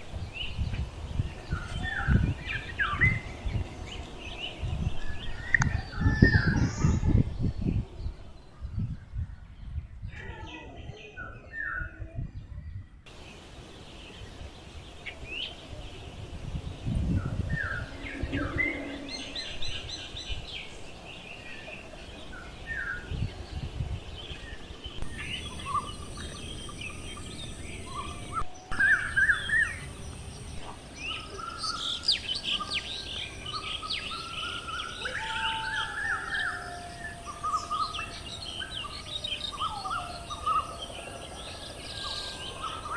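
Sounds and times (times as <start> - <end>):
birds chirping: 0.0 - 8.9, 13.1 - 42.9
low rumble: 15.6 - 21.2.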